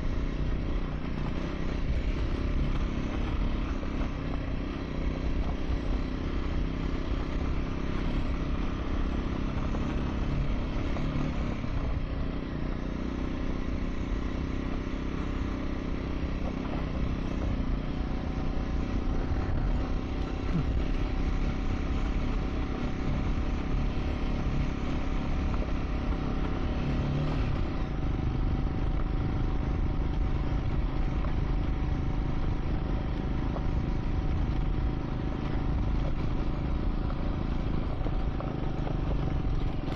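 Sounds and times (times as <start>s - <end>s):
motorcycle engine running: 0.0s - 39.9s
clatter over rough surface: 28.9s - 39.9s.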